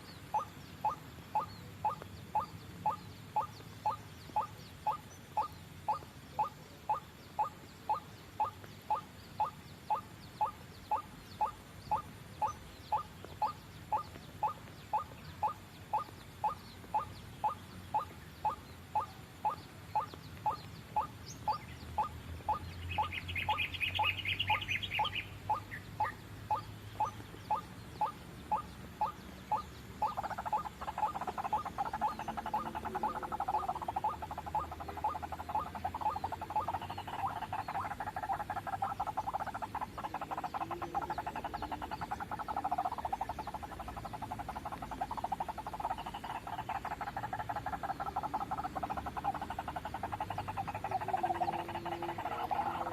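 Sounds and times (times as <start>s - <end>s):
bird chatter: 0.0s - 52.9s.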